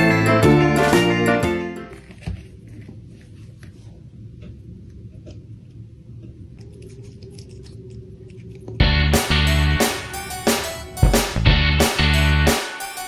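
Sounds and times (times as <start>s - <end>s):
low hum: 1.9s - 11.8s.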